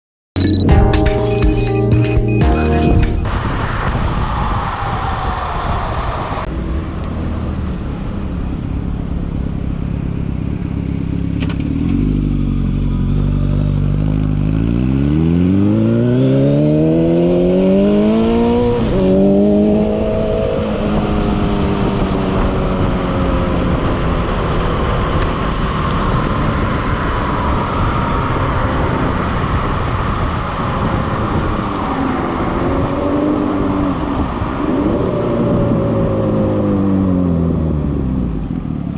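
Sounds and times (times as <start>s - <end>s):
wind rushing: 2.8s - 8.6s.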